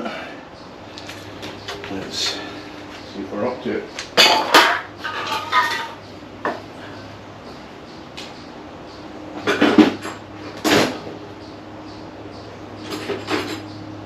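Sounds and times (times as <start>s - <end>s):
metal hand tools clattering: 4.2s - 6.0s.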